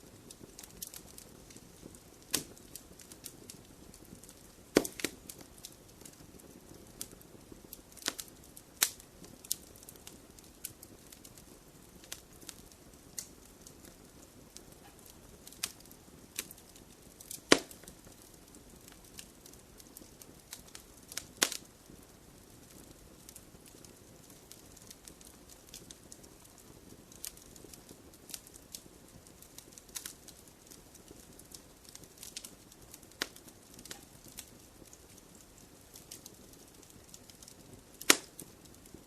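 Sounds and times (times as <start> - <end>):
wood fire crackling and popping: 0.0 - 39.0.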